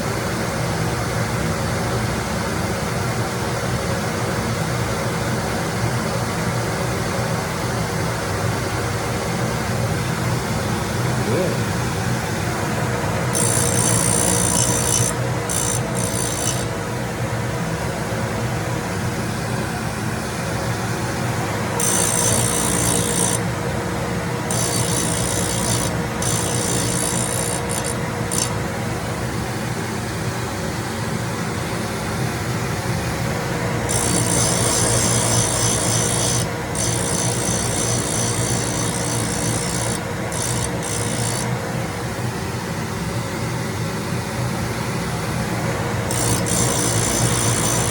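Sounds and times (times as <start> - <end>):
machine humming: 10.0 - 29.8, 33.0 - 42.2, 45.4 - 47.9.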